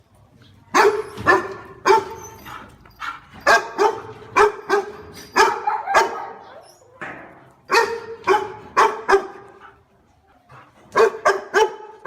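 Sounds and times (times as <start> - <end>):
dog barking: 0.7 - 2.3, 3.0 - 6.6, 7.7 - 9.6, 10.9 - 12.0.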